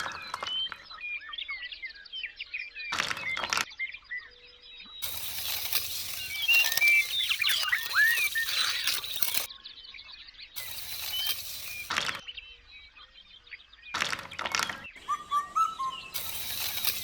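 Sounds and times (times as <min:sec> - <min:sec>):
small birds chirping: 0:04.4 - 0:17.0.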